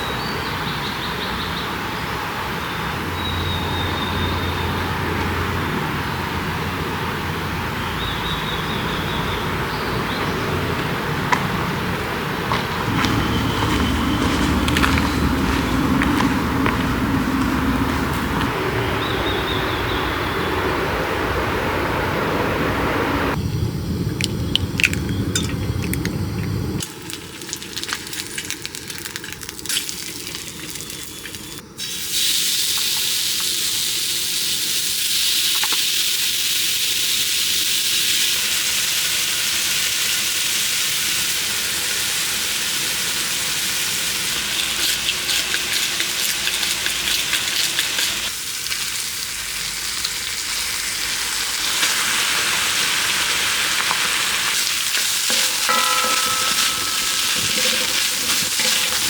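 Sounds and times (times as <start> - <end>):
food sizzling in a pan: 12.9 - 17.0, 26.8 - 59.0.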